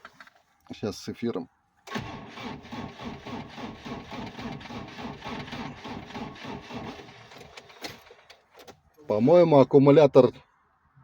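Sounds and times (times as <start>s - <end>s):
starter motor cranking: 1.9s - 7.8s.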